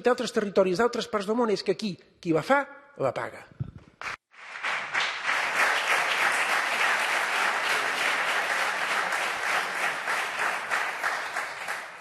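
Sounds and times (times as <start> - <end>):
crowd applauding: 4.0 - 12.0.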